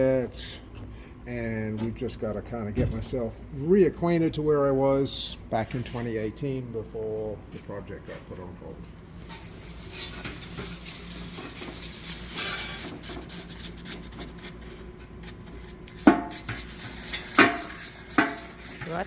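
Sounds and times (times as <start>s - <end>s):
metal parts rubbing and scraping: 8.8s - 19.0s.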